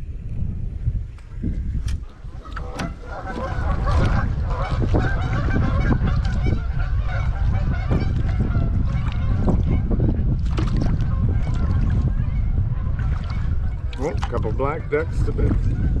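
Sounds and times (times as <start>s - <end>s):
ducks quacking: 2.2s - 10.2s.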